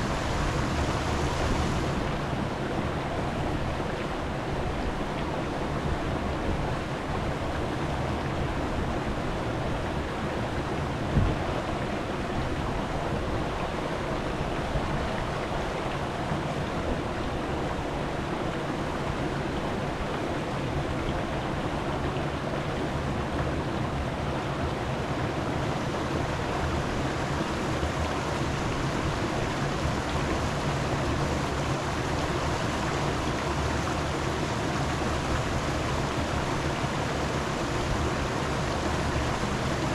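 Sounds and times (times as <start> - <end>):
steady rushing noise: 0.0 - 2.4.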